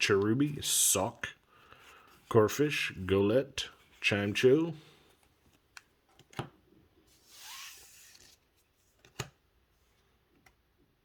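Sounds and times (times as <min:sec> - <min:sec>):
cards sliding against each other: 0:07.1 - 0:09.3.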